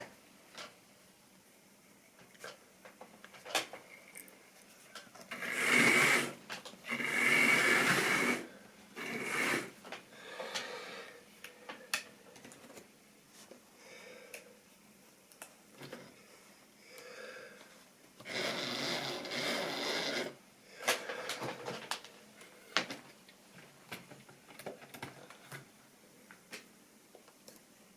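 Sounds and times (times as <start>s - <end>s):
model train rumbling: 5.3s - 6.3s, 6.9s - 9.7s.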